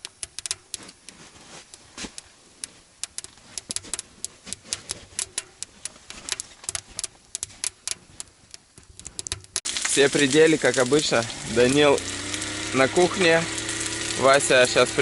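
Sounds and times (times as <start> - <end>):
footsteps crunching on frozen snow: 0.8 - 8.5.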